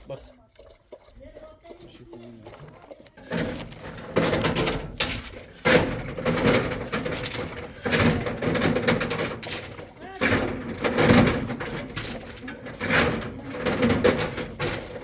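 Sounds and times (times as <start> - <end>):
clattering noise: 3.2 - 15.0
sharp knocks: 3.3 - 15.0.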